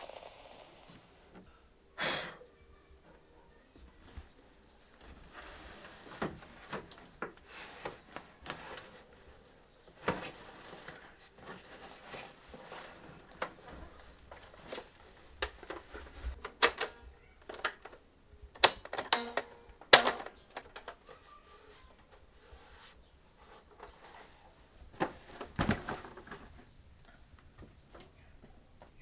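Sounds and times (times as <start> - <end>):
clicks and knocks of handling: 3.8 - 21.2.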